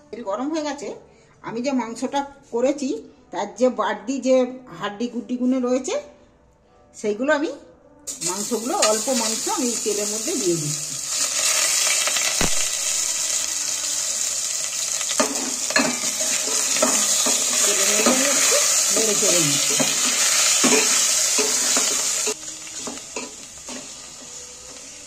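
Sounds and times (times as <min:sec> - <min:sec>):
meat sizzling in hot oil: 0:08.1 - 0:25.0.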